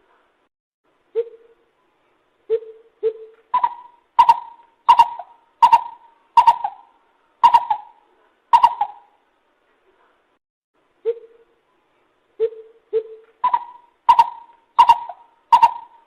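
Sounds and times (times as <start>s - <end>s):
bird hooting calls: 2.5s - 9.2s, 12.4s - 16.0s.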